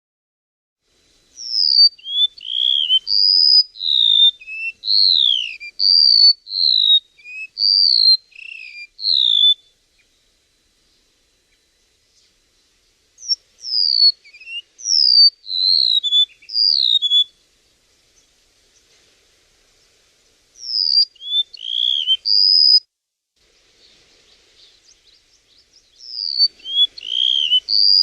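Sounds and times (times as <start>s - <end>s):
bird whistling song: 1.4s - 10.2s, 13.2s - 17.4s, 20.6s - 22.9s, 23.8s - 28.0s.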